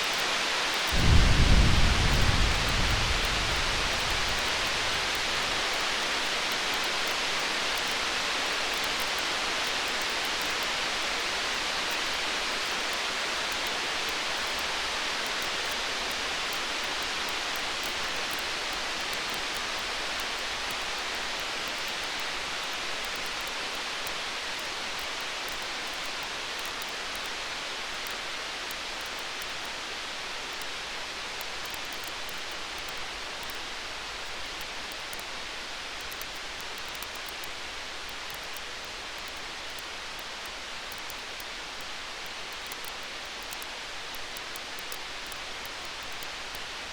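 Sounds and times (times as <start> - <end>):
wood fire crackling: 0.8 - 6.8
rain hissing: 0.8 - 7.5.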